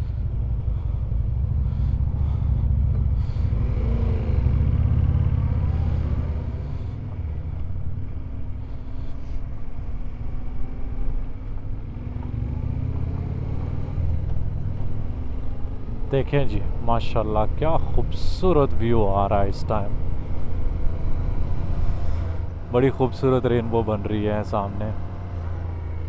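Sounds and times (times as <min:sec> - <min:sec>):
motorcycle engine accelerating: 0:00.0 - 0:08.8, 0:09.6 - 0:16.1
wind and road noise: 0:00.0 - 0:26.0.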